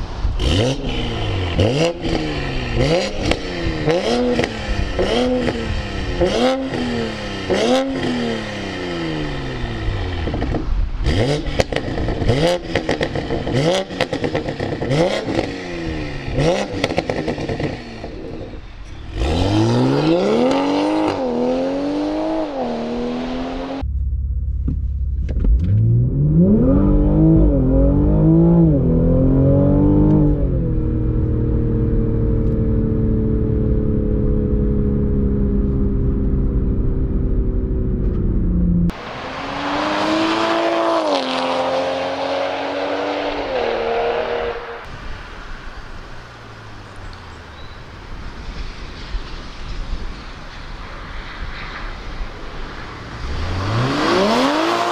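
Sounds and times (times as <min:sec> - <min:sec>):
car accelerating through gears: 0:00.4 - 0:10.4, 0:11.0 - 0:23.8, 0:25.5 - 0:31.1, 0:38.9 - 0:44.9, 0:53.2 - 0:54.9
car engine revving: 0:00.4 - 0:36.5, 0:37.3 - 0:47.6, 0:52.8 - 0:54.9
exhaust crackles and pops: 0:10.1 - 0:19.6, 0:23.8 - 0:26.3, 0:33.4 - 0:39.0, 0:44.8 - 0:54.0.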